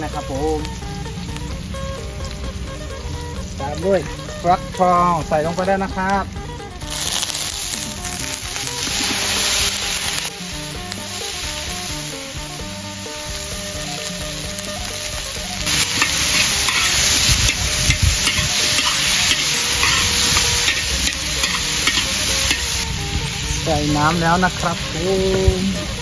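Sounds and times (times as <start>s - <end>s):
food sizzling in hot oil: 0.0s - 26.0s
stirring scraping a wok: 6.5s - 23.4s.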